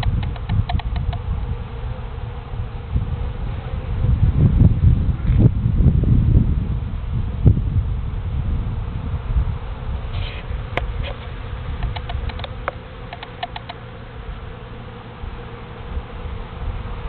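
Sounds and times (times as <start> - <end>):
light ticks: 0.0 - 1.2, 11.8 - 13.8
honeybees buzzing: 0.0 - 6.3, 7.0 - 17.0.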